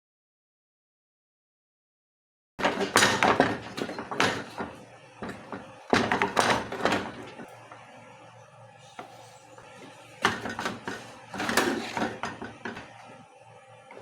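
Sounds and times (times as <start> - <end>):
kitchen utensils clattering: 2.6 - 7.6, 9.0 - 13.0.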